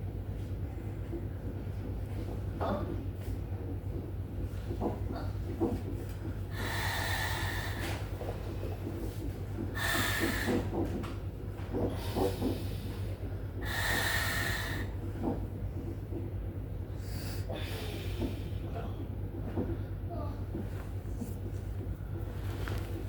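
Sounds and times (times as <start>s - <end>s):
steady low hum: 0.0s - 23.0s
woman breathing heavily: 6.3s - 8.5s, 9.6s - 11.0s, 11.7s - 15.4s, 16.9s - 19.0s.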